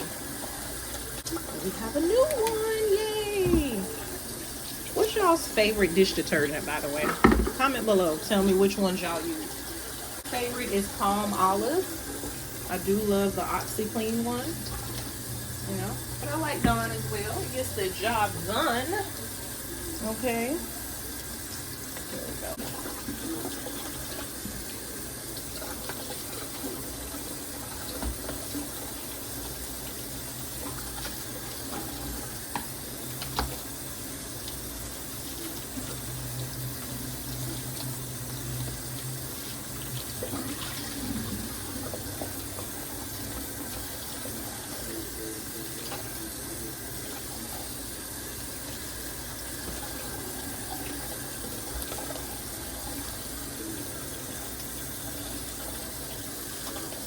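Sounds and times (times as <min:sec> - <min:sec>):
tap water running into sink: 0:00.0 - 0:57.0
light knocks of dishes: 0:07.0 - 0:07.6.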